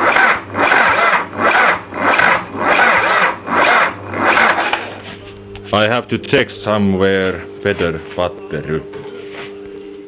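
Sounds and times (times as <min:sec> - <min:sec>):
starter motor cranking engine: 0:00.0 - 0:05.2.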